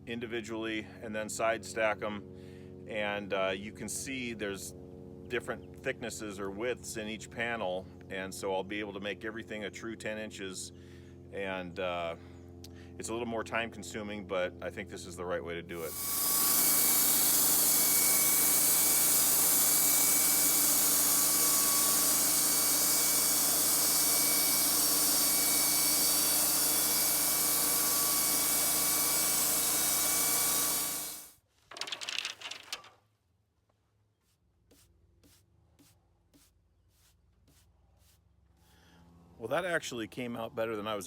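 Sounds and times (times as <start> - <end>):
band sawmill cutting wood: 15.8 - 31.3.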